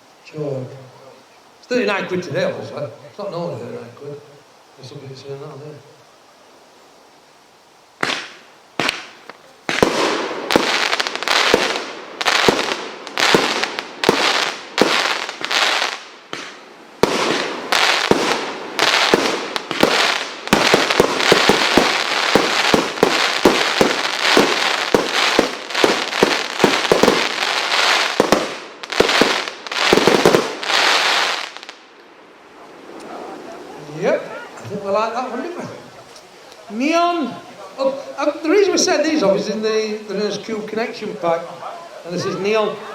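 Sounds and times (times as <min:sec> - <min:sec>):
firework shots banging: 0:08.0 - 0:31.7.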